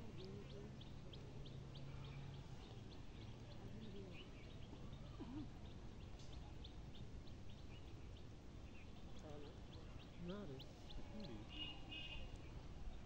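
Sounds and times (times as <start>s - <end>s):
faint bird chirps: 0.0s - 12.6s
low outdoor background noise: 0.0s - 13.0s.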